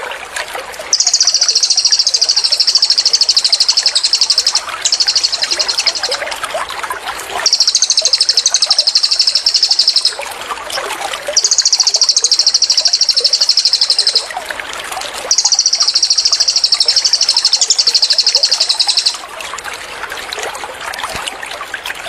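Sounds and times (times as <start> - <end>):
gurgling water: 0.0 - 22.0
bird trilling: 0.9 - 6.2, 7.4 - 10.2, 11.4 - 14.3, 15.3 - 19.2
soft bird chirps: 0.9 - 6.2, 7.4 - 10.2, 11.4 - 14.3, 15.3 - 19.2.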